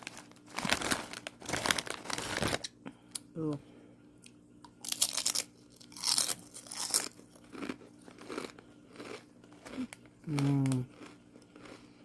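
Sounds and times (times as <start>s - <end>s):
potato chips crunching: 4.8s - 12.0s
chewing: 6.0s - 12.0s.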